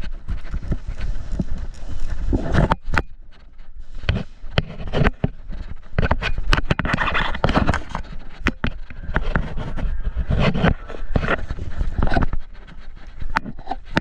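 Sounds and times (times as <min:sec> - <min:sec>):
gear rustling and scraping: 0:00.0 - 0:14.0.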